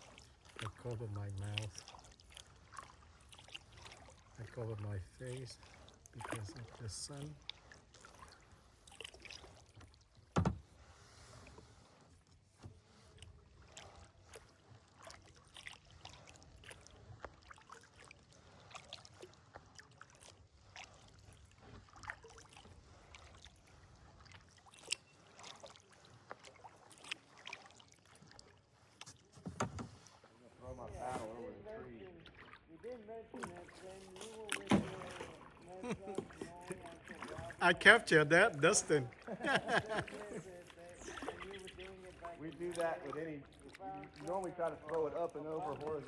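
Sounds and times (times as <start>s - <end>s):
paddle splashes and drips: 0.0s - 46.0s
kayak knocks: 10.3s - 10.8s, 29.3s - 30.2s, 34.5s - 37.6s.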